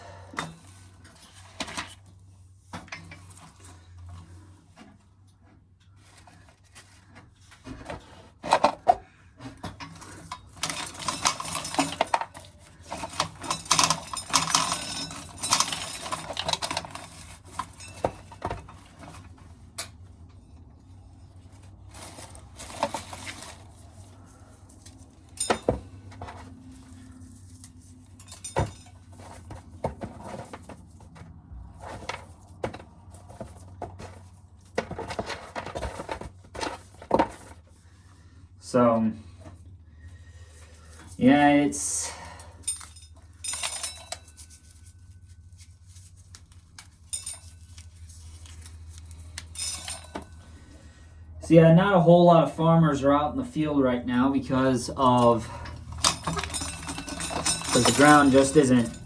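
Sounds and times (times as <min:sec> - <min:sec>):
corn kernels rattling into container: 0:55.9 - 0:59.0.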